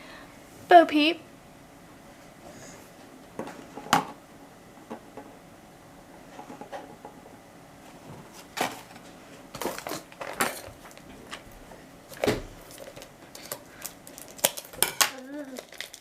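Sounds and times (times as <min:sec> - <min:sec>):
cardboard and plastic packaging handled: 0:08.0 - 0:16.0.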